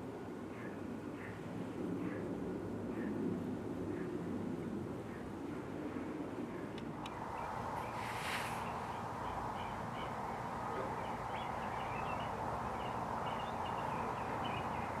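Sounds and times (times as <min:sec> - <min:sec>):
outdoor background noise: 0:00.0 - 0:15.0
small birds chirping: 0:07.0 - 0:15.0.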